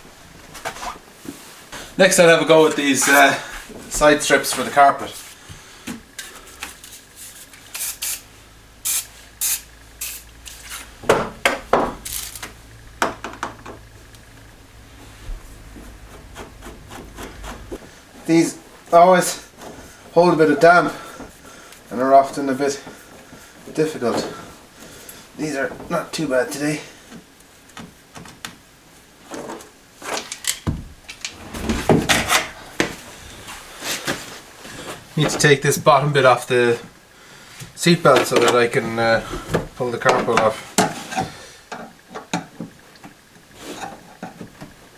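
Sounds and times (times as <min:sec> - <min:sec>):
trim scraping and rattling: 0:02.6 - 0:05.4, 0:06.0 - 0:21.4
dull thump: 0:10.9 - 0:12.0
trim strips scraping and knocking: 0:15.2 - 0:17.9.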